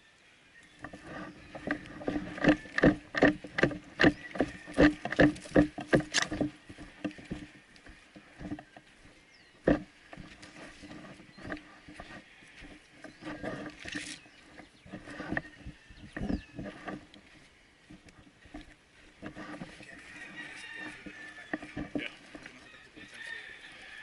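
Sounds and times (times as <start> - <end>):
sharp cracks or crunches: 1.7 - 7.4.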